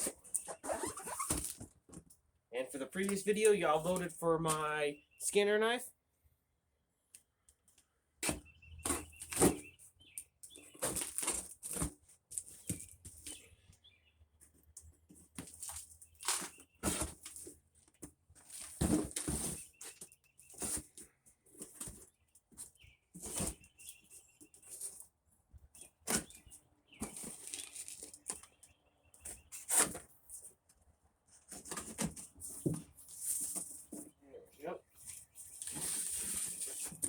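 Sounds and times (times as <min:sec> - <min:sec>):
packaging rustling and tearing: 0:27.0 - 0:28.4.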